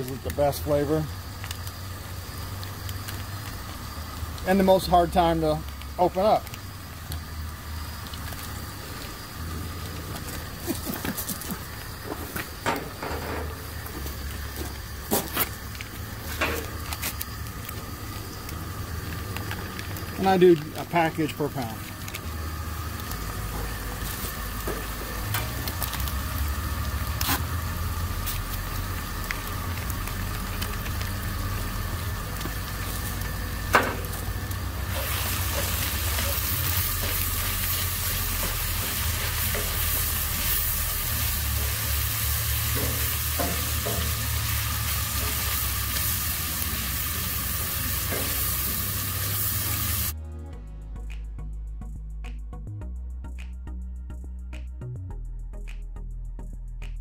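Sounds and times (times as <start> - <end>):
meat sizzling in skillet: 0.0 - 50.2
utensil knocking pan: 42.6 - 44.4
music: 49.7 - 57.0.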